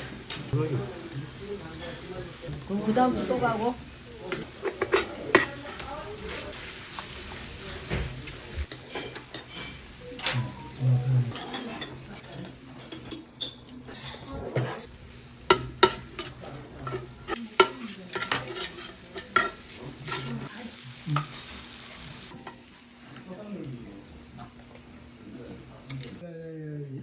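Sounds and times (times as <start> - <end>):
food sizzling: 0.0 - 26.2
metal spatulas scraping a griddle: 4.4 - 14.9, 15.5 - 22.6.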